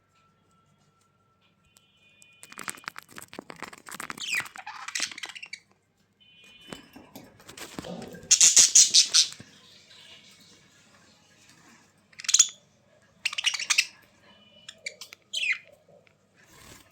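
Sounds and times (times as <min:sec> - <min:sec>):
scratching and rustling: 0:02.3 - 0:05.7, 0:06.8 - 0:09.6
small birds chirping: 0:03.8 - 0:05.7, 0:08.3 - 0:10.4, 0:12.2 - 0:16.8
falling squeak: 0:04.1 - 0:05.7.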